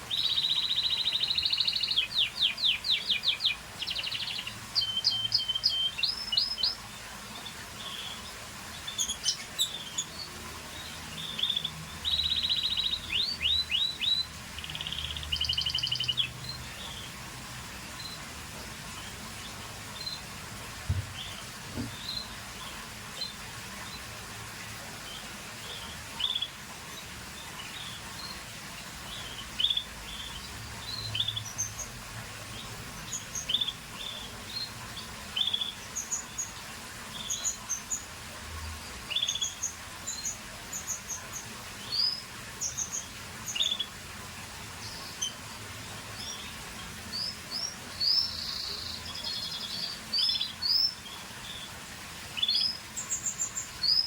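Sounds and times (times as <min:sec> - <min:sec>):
steady background hiss: 0:00.0 - 0:54.0
canary chirping: 0:00.1 - 0:06.8, 0:07.8 - 0:17.1, 0:29.1 - 0:31.8.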